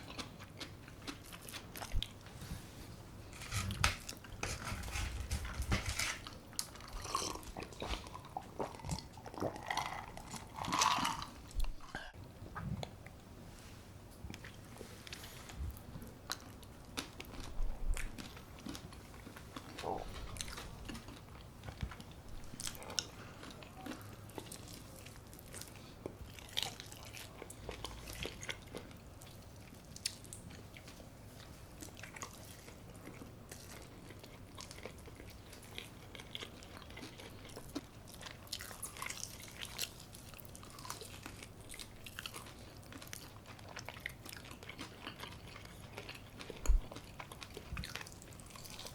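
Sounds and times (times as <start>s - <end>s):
person chewing: 0.0s - 2.3s, 6.0s - 12.2s, 16.1s - 30.9s, 31.7s - 48.9s.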